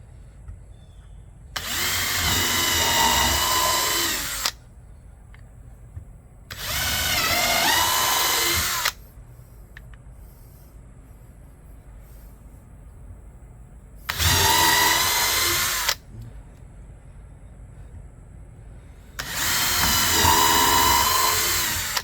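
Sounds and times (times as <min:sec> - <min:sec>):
power drill drilling wood: 0:01.6 - 0:04.6, 0:06.5 - 0:09.0, 0:14.1 - 0:16.0, 0:19.2 - 0:22.0.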